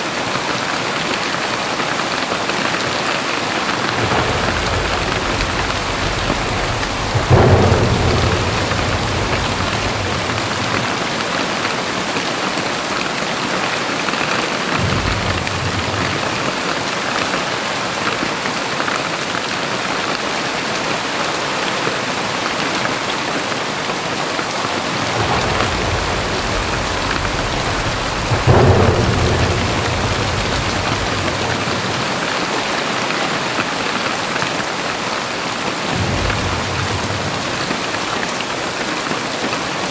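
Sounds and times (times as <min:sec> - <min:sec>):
heavy rain: 0:00.0 - 0:39.9
deep thunder rumbles: 0:02.7 - 0:13.0, 0:14.7 - 0:17.4, 0:24.3 - 0:33.7, 0:35.6 - 0:39.9.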